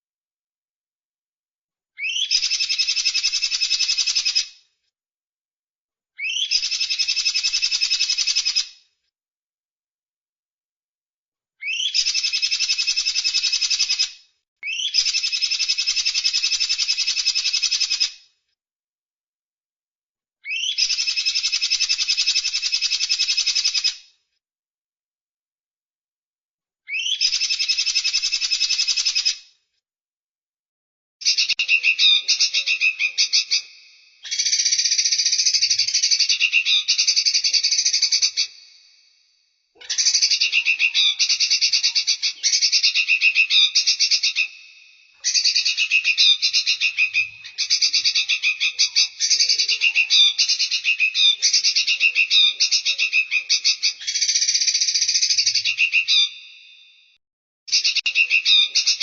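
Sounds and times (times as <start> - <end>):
songbird trilled chattering: 31.2 - 38.6.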